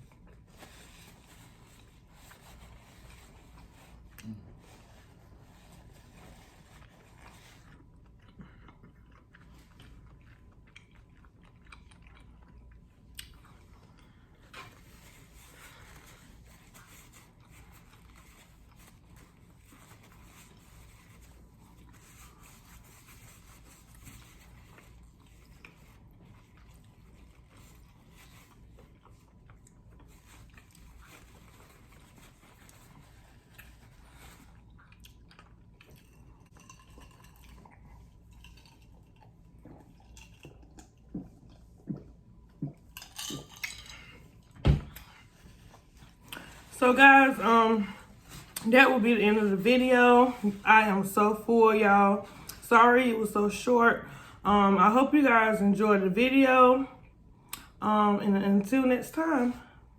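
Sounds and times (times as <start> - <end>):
person chewing food: 6.5 - 22.9, 23.8 - 46.7.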